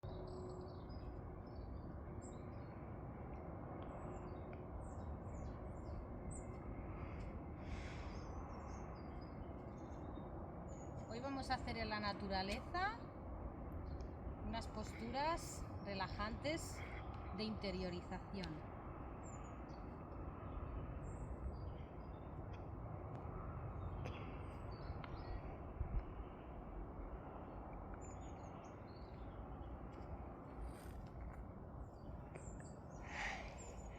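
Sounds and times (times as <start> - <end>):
low outdoor background noise: 0.0 - 33.9
small birds chirping: 3.8 - 13.0, 23.7 - 33.9.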